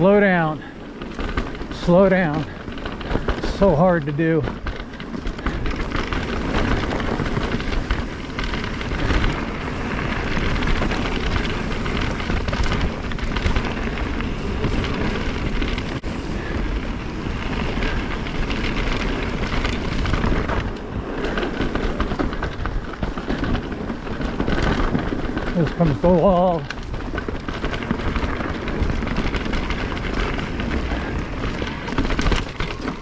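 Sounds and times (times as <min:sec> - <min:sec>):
bike rattling and knocking: 0:00.0 - 0:33.0
bike tyres on dirt: 0:00.0 - 0:33.0
wind on microphone: 0:00.0 - 0:33.0.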